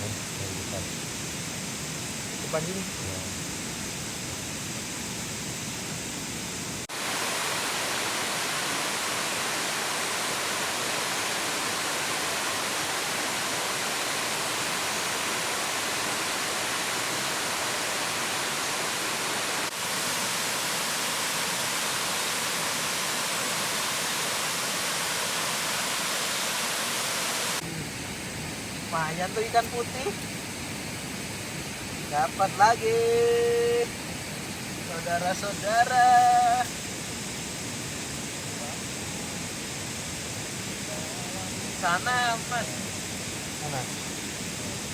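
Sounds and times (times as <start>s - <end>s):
waterfall rushing: 6.9s - 28.0s, 38.3s - 44.9s.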